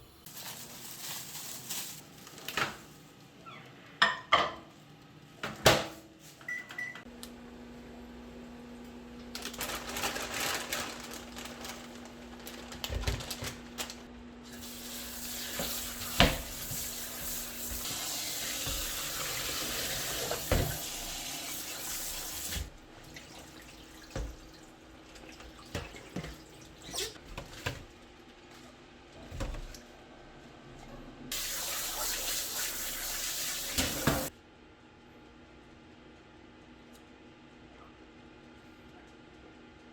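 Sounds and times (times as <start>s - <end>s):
tap running into sink: 17.7s - 21.0s.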